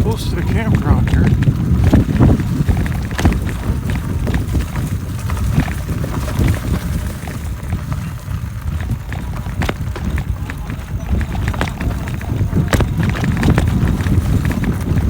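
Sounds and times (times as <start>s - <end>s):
bike clicks and rattles: 0.0s - 15.0s
tyres rumbling on trail: 0.0s - 15.0s
wind on microphone: 0.0s - 15.0s.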